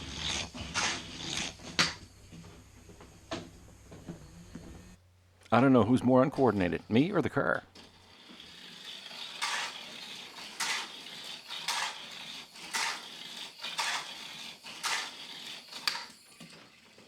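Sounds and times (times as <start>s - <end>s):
toy car motor whine: 0.0s - 2.1s, 7.7s - 17.0s
toy car clattering on track: 7.8s - 17.0s.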